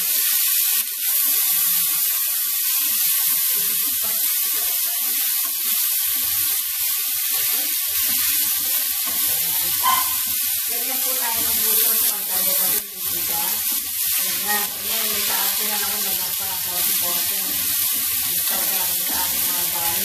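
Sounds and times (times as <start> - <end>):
vegetables sizzling in oil: 0.0 - 20.0
wooden spatula stirring: 8.0 - 20.0.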